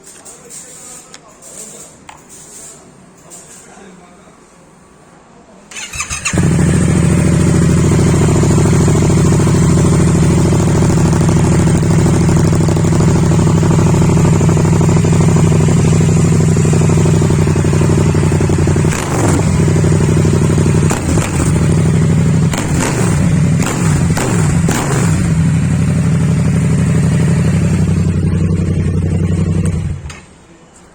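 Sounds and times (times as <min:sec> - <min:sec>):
motorcycle engine idling and revving: 0:05.7 - 0:30.2.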